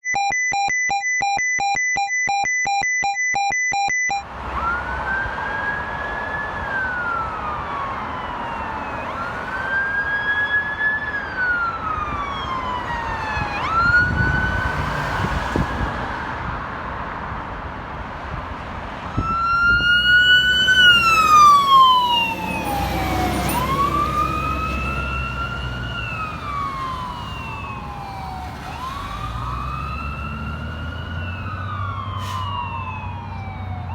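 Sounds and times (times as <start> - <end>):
electronic siren wailing: 0.0 - 9.4, 10.4 - 14.9, 19.2 - 33.9
louder wailing siren: 0.1 - 16.1, 19.1 - 33.9
heavy vehicle rumbling past: 19.8 - 33.7.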